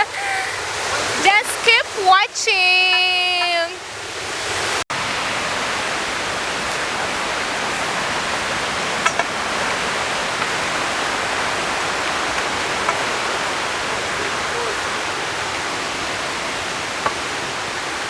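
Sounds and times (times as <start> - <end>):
waterfall roaring: 0.0 - 18.0.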